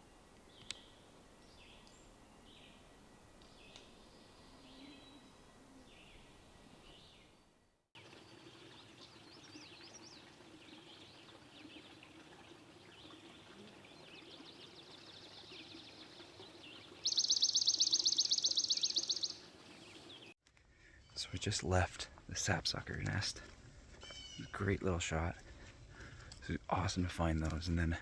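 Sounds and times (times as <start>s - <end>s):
birds chirping and whistling: 14.0s - 20.3s, 24.0s - 24.5s
loud fast bird trill: 17.0s - 19.4s.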